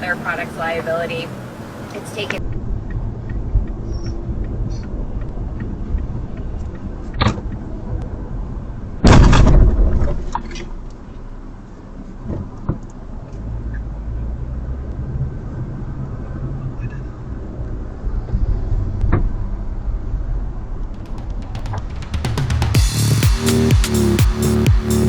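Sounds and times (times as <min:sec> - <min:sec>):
loud collision impact: 0:20.9 - 0:25.0
sharp knock: 0:21.0 - 0:24.9.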